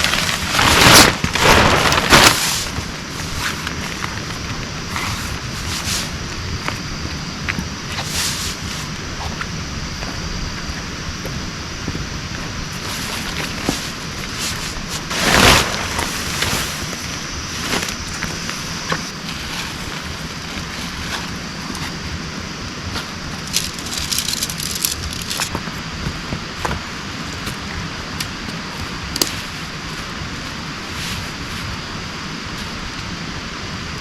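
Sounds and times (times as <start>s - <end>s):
short loud rustle: 0.0s - 3.6s
heavy rain falling: 0.0s - 4.6s.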